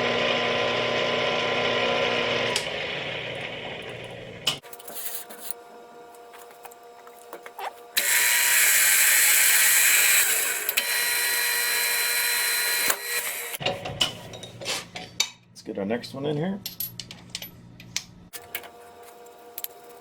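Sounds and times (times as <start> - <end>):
milling machine humming: 0.0 - 4.6, 7.9 - 13.6.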